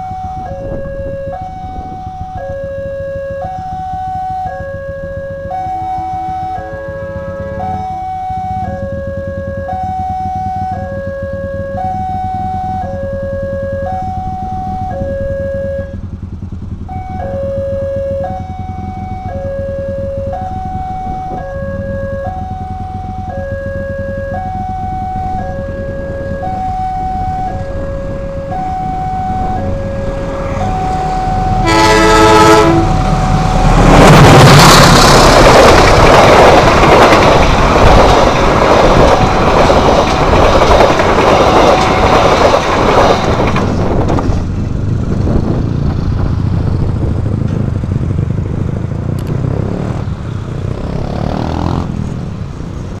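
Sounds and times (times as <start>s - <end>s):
level crossing two-tone alarm: 0.0s - 16.1s, 16.8s - 34.0s
motorcycle engine revving: 0.0s - 53.0s
train horn blast: 5.8s - 8.0s, 27.4s - 35.4s
train wheels on rails: 24.3s - 53.0s.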